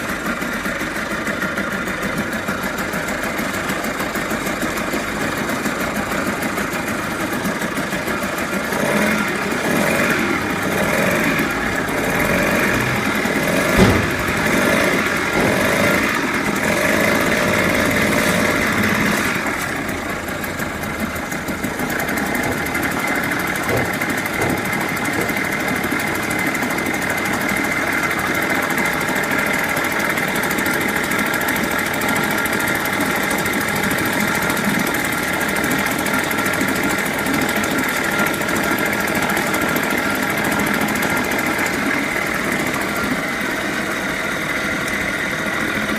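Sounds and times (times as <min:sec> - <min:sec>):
outboard motor running: 0:00.0 - 0:45.9
sharp knock: 0:13.5 - 0:16.0, 0:22.4 - 0:25.6.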